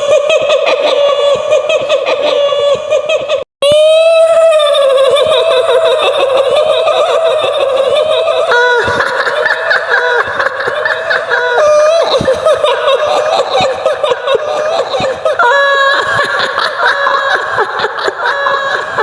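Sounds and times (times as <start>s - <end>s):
woman's cackling laughter: 0.0s - 3.4s, 5.1s - 19.0s.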